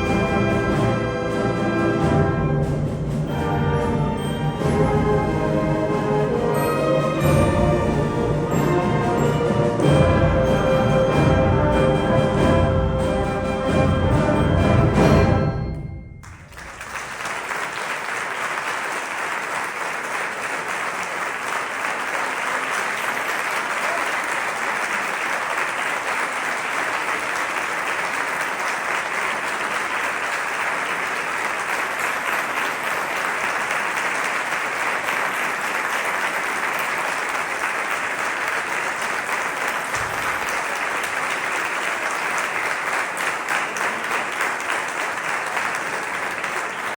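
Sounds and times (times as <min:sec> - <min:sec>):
audience applauding: 0:16.2 - 0:47.0.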